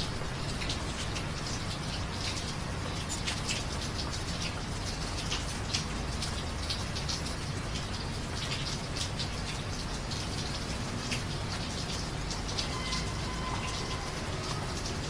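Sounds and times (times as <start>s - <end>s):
drips and splashes: 0.0s - 15.0s
steady rain falling: 0.0s - 15.0s.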